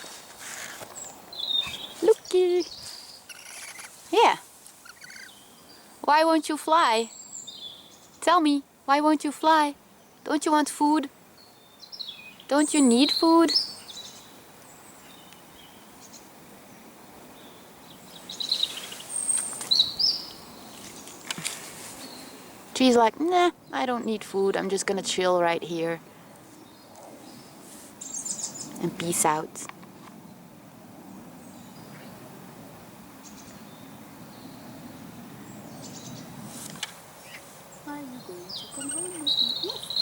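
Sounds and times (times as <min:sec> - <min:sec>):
small birds chirping: 0:00.0 - 0:08.6, 0:11.4 - 0:16.3, 0:17.4 - 0:30.5, 0:33.2 - 0:40.0
faint outdoor background noise: 0:00.0 - 0:40.0
short bird chirps: 0:02.7 - 0:04.0, 0:04.8 - 0:05.4.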